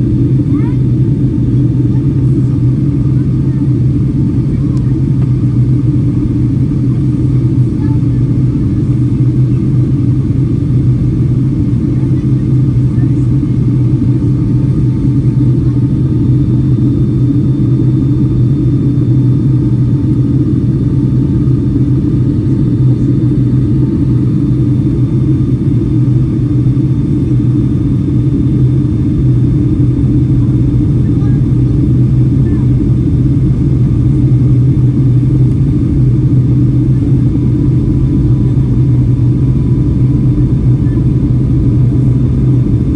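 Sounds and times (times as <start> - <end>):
jet engine drone in cabin: 0.0 - 42.9.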